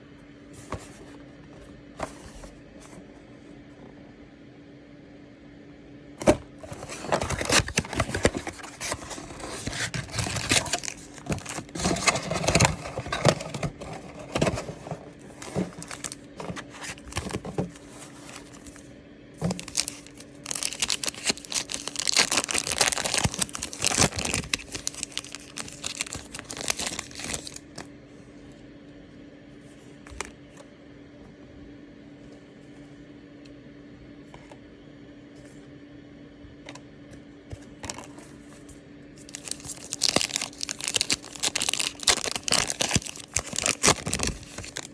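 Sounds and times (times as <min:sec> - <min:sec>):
packaging crinkling and tearing: 0:06.2 - 0:27.8, 0:39.2 - 0:44.9.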